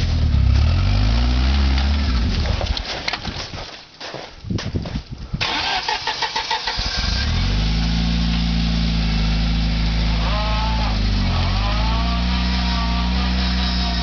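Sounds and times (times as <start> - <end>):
starter cranking engine: 5.4 - 7.4.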